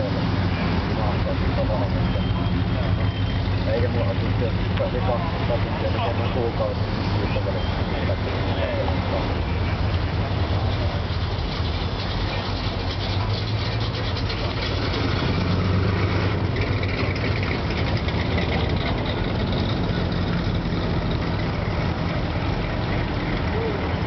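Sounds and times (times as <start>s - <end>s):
car engines rumbling: 0.0s - 24.0s.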